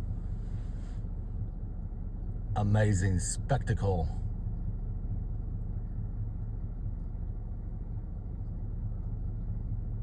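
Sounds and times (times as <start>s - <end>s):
low outdoor rumble: 0.0s - 10.0s.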